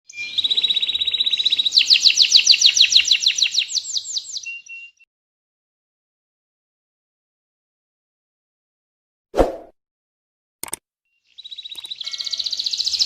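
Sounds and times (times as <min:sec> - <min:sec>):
canary singing: 0:00.1 - 0:05.0, 0:11.3 - 0:13.0.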